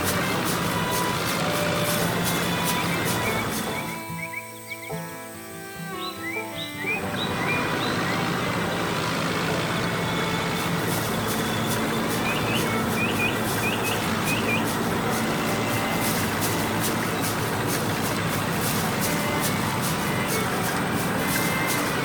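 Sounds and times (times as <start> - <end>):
bird chirps: 0.0 - 8.9, 10.1 - 20.5
tractor engine running: 0.0 - 22.0
rapid even clicks: 9.2 - 22.0.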